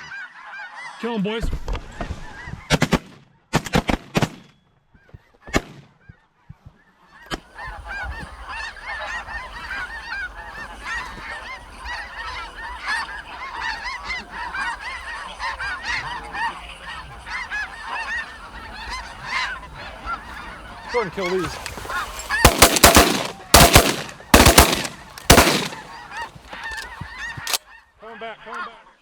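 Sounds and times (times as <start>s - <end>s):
geese honking: 7.5s - 27.6s
shotgun shots: 20.8s - 27.6s.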